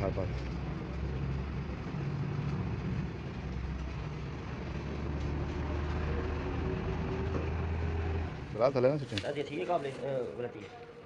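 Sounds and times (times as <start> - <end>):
engine droning: 0.0 - 8.8.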